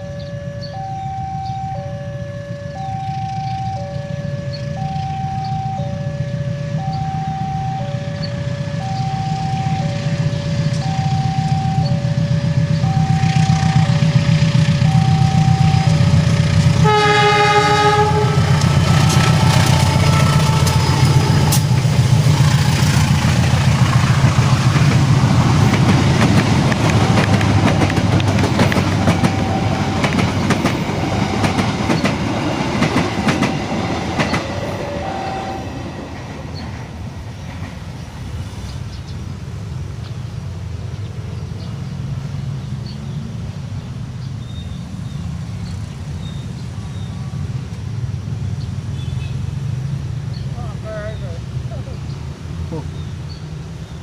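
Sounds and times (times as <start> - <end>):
train wheels clattering on rails: 10.2 - 35.0.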